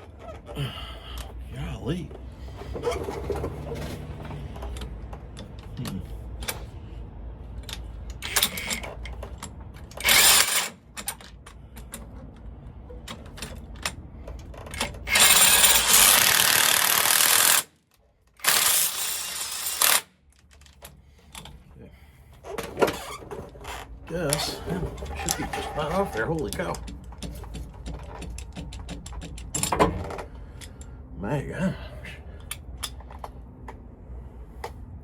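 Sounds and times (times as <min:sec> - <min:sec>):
impact wrench hammering: 0:10.0 - 0:10.8, 0:15.1 - 0:17.7, 0:18.4 - 0:20.1
tool clicks and knocks: 0:26.4 - 0:30.9.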